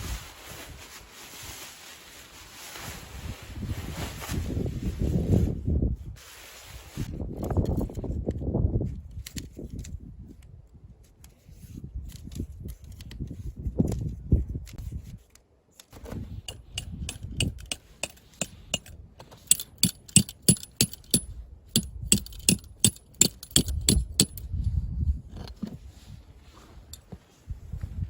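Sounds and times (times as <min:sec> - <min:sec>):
wind on microphone: 0:00.0 - 0:00.8, 0:02.9 - 0:15.2, 0:16.0 - 0:19.0, 0:23.6 - 0:28.0
metallic clinks of camping gear: 0:16.5 - 0:24.6.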